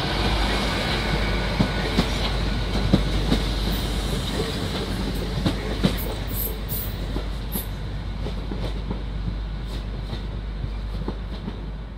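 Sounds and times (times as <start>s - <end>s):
train wheels clicking over rail joints: 0.2s - 11.9s.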